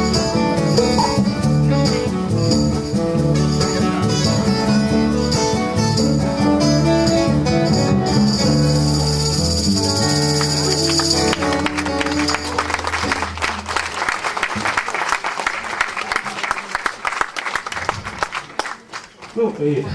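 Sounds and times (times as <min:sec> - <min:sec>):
live band with guitar and fiddle: 0:00.0 - 0:14.9.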